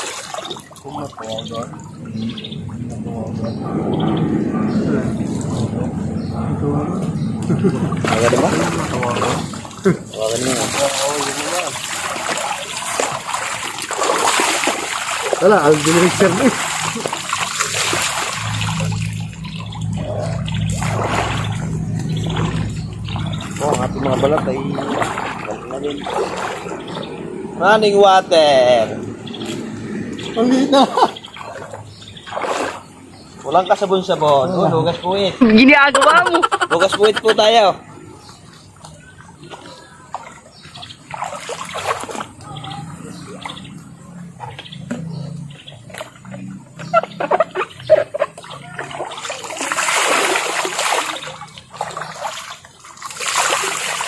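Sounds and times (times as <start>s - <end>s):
running water splashing: 0.0s - 54.0s
steady low hum: 1.6s - 10.2s, 16.0s - 32.2s.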